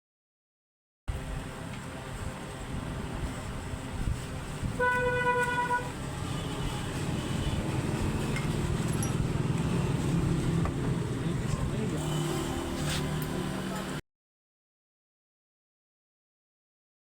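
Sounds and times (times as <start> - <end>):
rumble of engines and traffic: 1.1 - 14.0
vehicle horn: 4.8 - 7.8.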